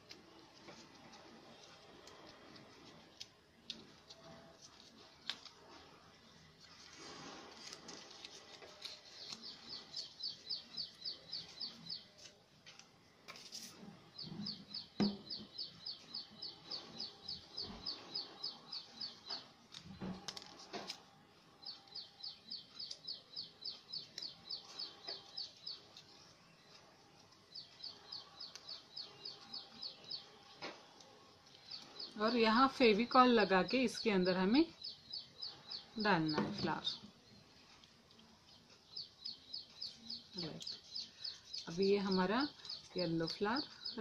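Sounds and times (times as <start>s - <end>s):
small bird chirping: 7.9s - 12.4s, 13.6s - 20.2s, 21.6s - 44.0s
paper rustling and tapping: 12.2s - 13.7s, 19.7s - 21.0s.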